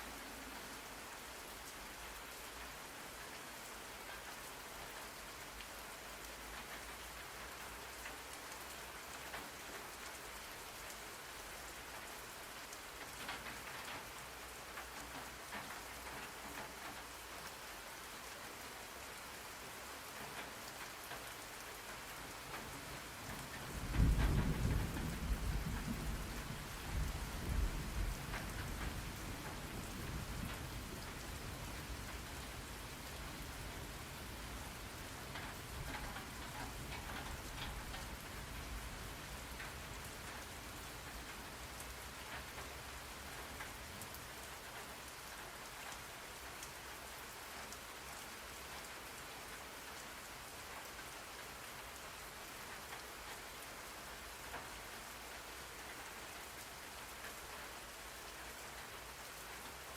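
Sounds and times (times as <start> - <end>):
steady rain falling: 0.0 - 59.9
low thunder rumble: 23.7 - 31.1.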